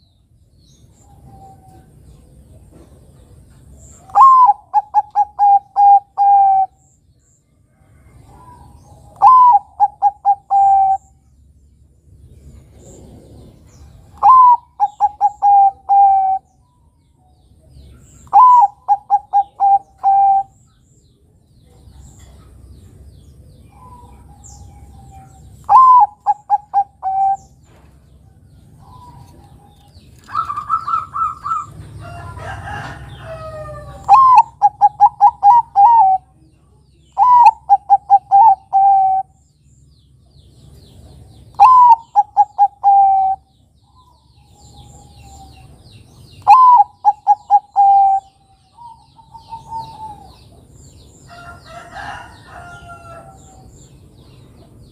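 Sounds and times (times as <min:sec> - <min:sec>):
rough bird call with gliding pitches: 0:03.8 - 0:07.0, 0:08.2 - 0:11.3, 0:12.8 - 0:16.9, 0:17.7 - 0:20.9, 0:23.6 - 0:27.7, 0:28.6 - 0:31.8, 0:32.7 - 0:39.5, 0:41.4 - 0:54.0
dove cooing: 0:04.0 - 0:06.8, 0:08.3 - 0:11.1, 0:14.2 - 0:16.5, 0:18.2 - 0:20.6, 0:23.7 - 0:27.6, 0:28.8 - 0:31.8, 0:32.4 - 0:36.4, 0:37.2 - 0:39.4, 0:41.6 - 0:45.8, 0:46.4 - 0:50.6.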